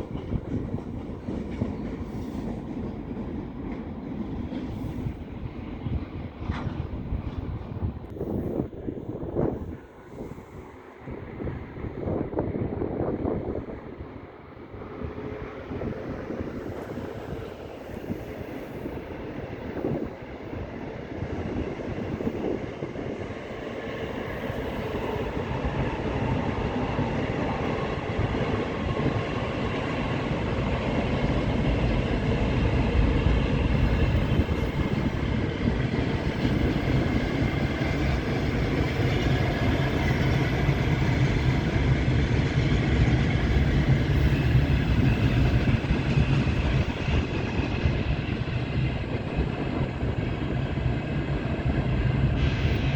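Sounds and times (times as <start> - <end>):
electric train on rails: 0.0 - 52.9.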